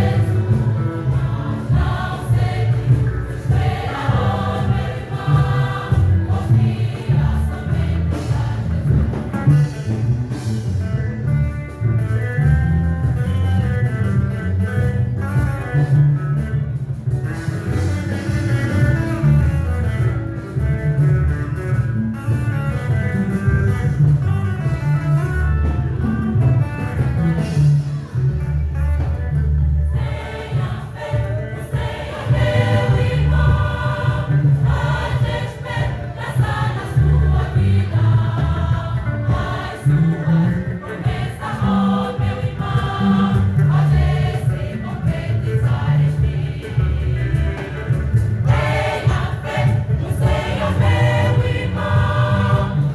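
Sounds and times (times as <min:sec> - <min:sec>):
choir singing gospel: 0:00.0 - 0:09.9, 0:29.9 - 0:52.9
band with heavy bass line: 0:00.0 - 0:52.9.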